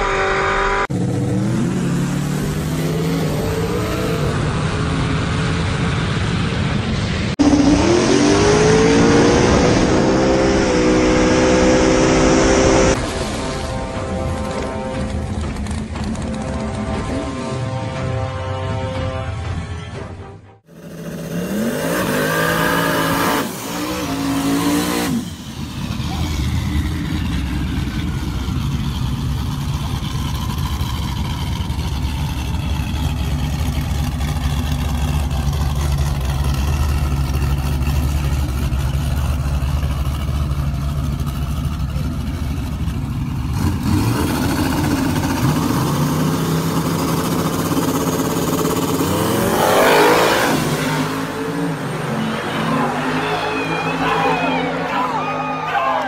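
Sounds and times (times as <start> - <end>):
car engine revving: 0.0 - 17.8, 20.7 - 56.0.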